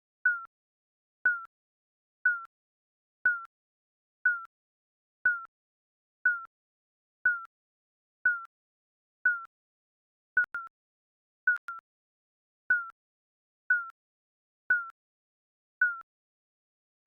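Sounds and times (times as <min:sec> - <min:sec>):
digital timer beeps: 0:00.3 - 0:00.5, 0:01.3 - 0:01.5, 0:02.3 - 0:02.5, 0:03.3 - 0:03.5, 0:04.3 - 0:04.5, 0:05.3 - 0:05.5, 0:06.3 - 0:06.5, 0:07.3 - 0:07.5, 0:08.3 - 0:08.5, 0:09.3 - 0:09.5, 0:10.4 - 0:10.8, 0:11.5 - 0:11.9, 0:12.7 - 0:13.0, 0:13.7 - 0:14.0, 0:14.7 - 0:15.0, 0:15.8 - 0:16.1.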